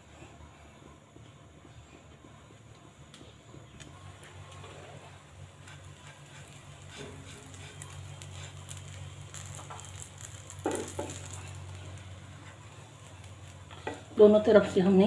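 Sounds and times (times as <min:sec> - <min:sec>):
food sizzling in oil: 0:04.0 - 0:15.0.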